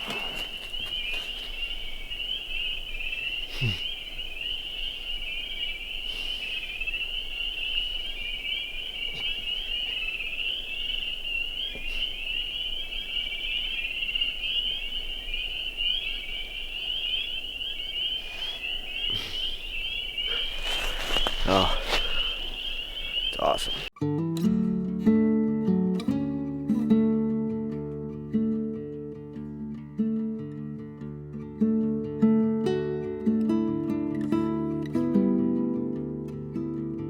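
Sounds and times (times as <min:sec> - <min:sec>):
chorus of frogs peeping: 0:00.0 - 0:23.9.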